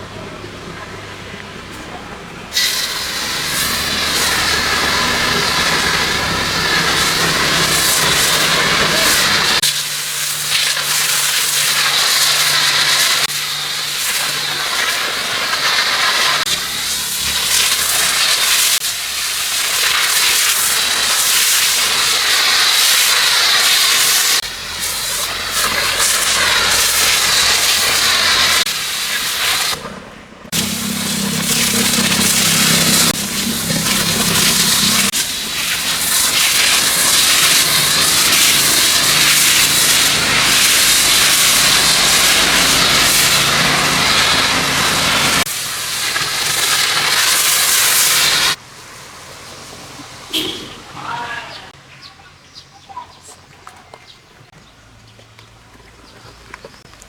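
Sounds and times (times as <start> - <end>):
pressurised cleaning jet hissing: 2.5 - 29.8, 30.5 - 48.6.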